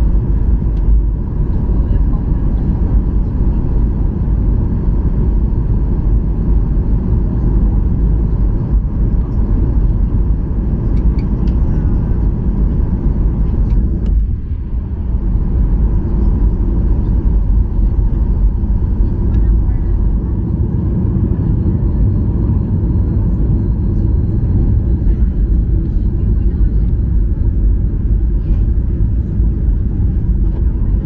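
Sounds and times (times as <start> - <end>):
airplane cabin engine rumble: 0.0 - 31.0.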